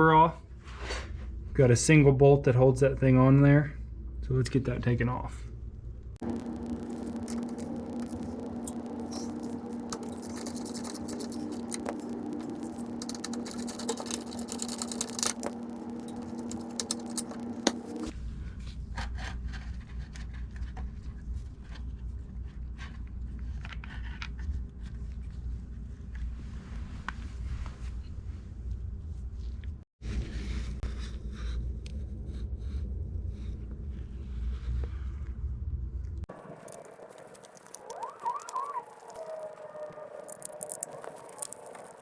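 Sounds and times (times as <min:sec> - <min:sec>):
low hum: 0:05.4 - 0:18.5, 0:30.2 - 0:42.0.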